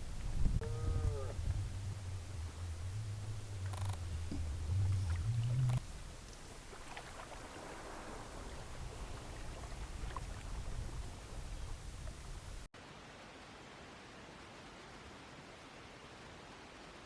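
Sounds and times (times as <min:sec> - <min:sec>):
low steady rumble: 0:00.0 - 0:12.7
cow mooing: 0:00.6 - 0:05.8.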